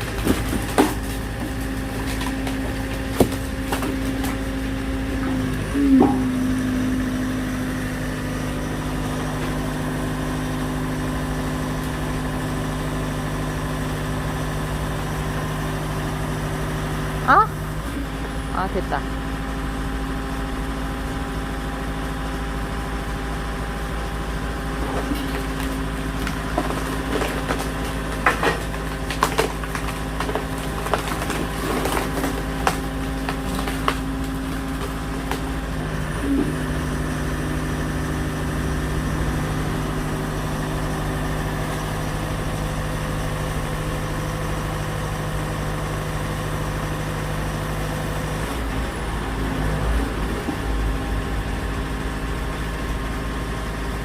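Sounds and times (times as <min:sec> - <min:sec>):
wood cracking and splintering: 0:00.0 - 0:13.6, 0:24.3 - 0:37.6
engine running: 0:00.0 - 0:54.0.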